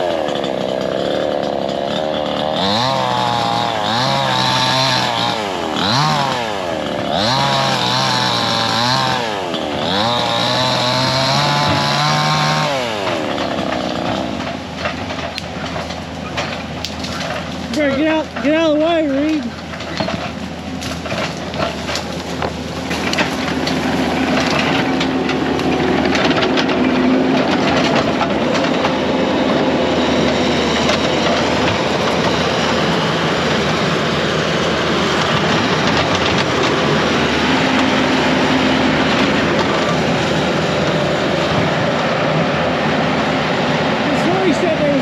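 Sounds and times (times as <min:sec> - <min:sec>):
diesel engine under load: 0:00.0 - 0:45.0
tracks clattering: 0:00.1 - 0:45.0
sharp cracks: 0:07.7 - 0:29.0.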